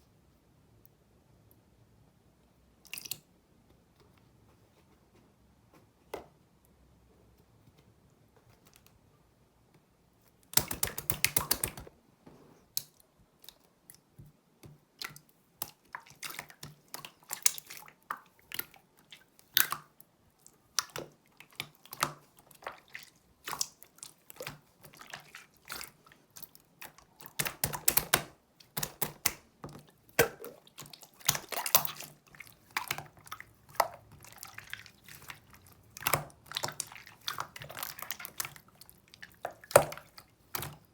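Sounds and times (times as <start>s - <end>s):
slime squished by hand: 10.5s - 11.9s, 20.7s - 40.9s.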